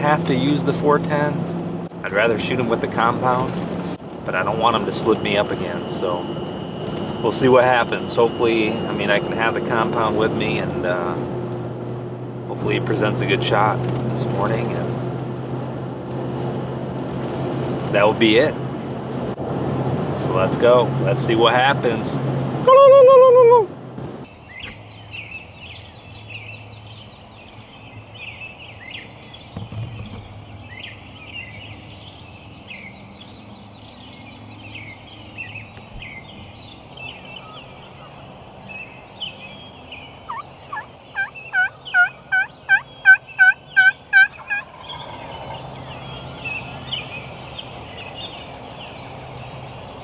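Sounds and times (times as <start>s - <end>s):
songbirds chirping: 0.0s - 1.3s, 2.0s - 11.5s, 12.2s - 15.0s, 24.2s - 50.0s
turkey calls: 40.2s - 47.0s.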